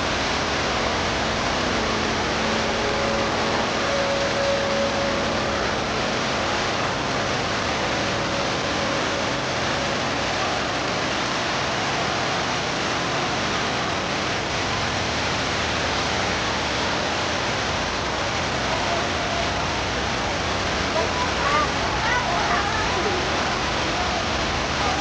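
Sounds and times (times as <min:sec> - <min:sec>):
indoor waterfall rushing: 0:00.0 - 0:25.0.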